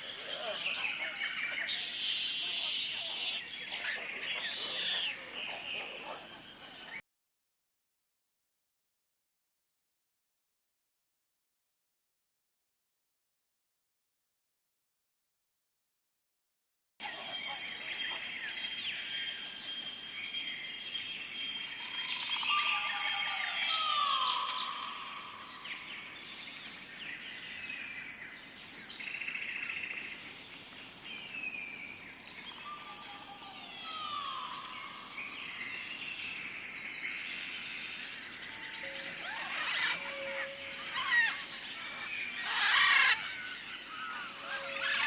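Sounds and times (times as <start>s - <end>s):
birds chirping and calling: 0.0s - 7.0s, 20.4s - 30.0s, 32.2s - 45.0s.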